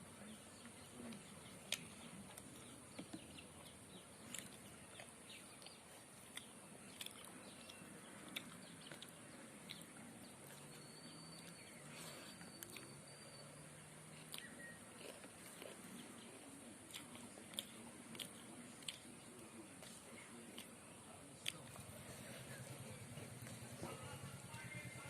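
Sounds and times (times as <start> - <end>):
faint low hum: 0.0 - 25.0
bird chirps: 0.2 - 15.2.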